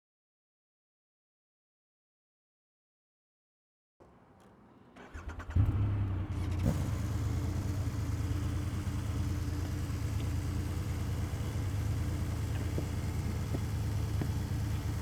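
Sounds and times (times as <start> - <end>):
motorcycle starter cranking: 5.0 - 5.6
motorcycle engine idling: 6.3 - 15.0.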